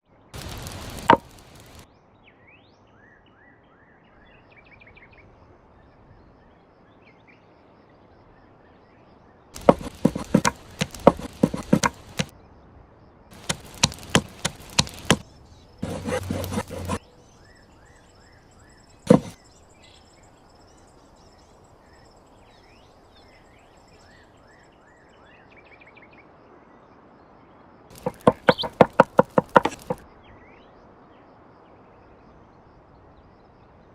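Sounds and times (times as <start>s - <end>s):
knife chopping on wooden board: 1.0s - 1.4s, 9.6s - 12.3s, 13.4s - 15.2s, 15.8s - 17.0s, 19.1s - 19.4s, 28.0s - 30.0s
single knocks: 9.6s - 12.3s, 19.1s - 19.4s, 28.0s - 30.0s
faint birds chirping: 13.4s - 25.7s, 27.9s - 30.4s.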